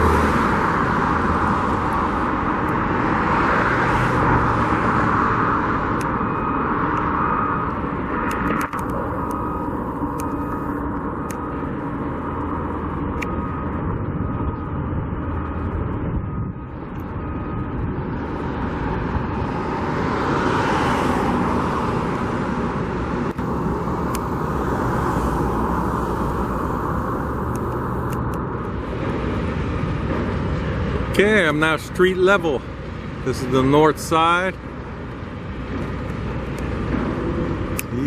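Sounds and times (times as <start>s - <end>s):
vehicle passing close by: 0.0s - 10.0s, 18.3s - 32.5s
road traffic: 0.0s - 38.0s.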